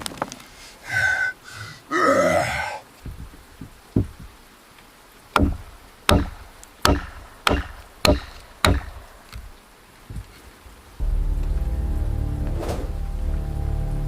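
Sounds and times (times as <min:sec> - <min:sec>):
axe chopping wood: 0:05.4 - 0:09.5.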